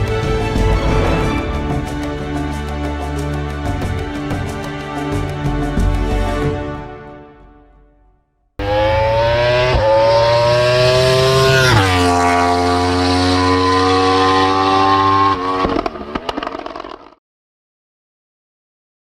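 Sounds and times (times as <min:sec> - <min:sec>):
car engine accelerating: 0:08.6 - 0:17.1.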